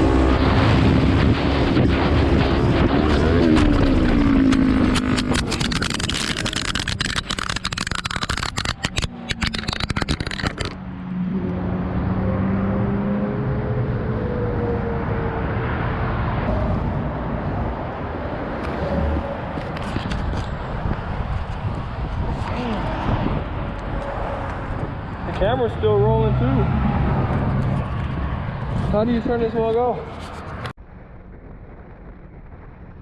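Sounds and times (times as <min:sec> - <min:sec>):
engine whine rising and falling: 0:00.0 - 0:07.5, 0:09.0 - 0:29.8
wind buffeting microphone: 0:00.0 - 0:07.8, 0:16.3 - 0:33.0
motorcycle engine: 0:00.0 - 0:13.7.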